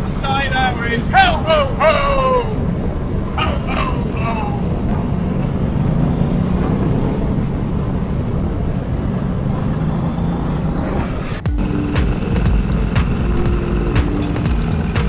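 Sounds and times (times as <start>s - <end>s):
motorcycle engine running: 11.5s - 15.0s.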